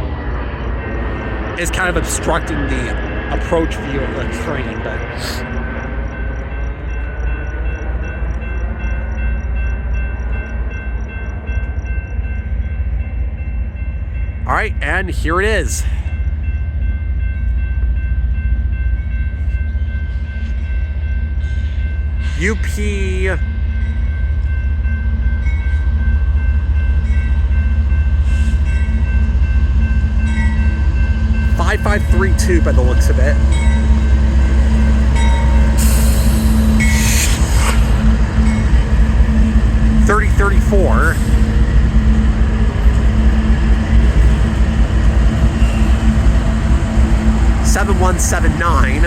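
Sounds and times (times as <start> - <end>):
crossing warning bells ringing: 0.0 - 49.0
freight train rumble: 0.0 - 49.0.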